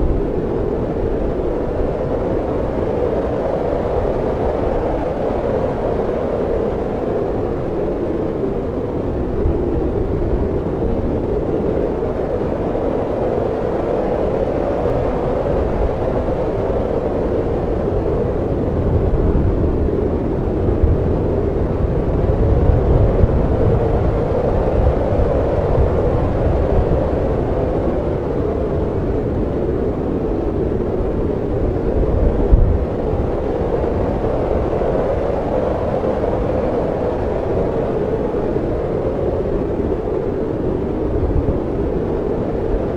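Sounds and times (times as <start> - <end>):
snowstorm wind rumbling: 0.0 - 42.9.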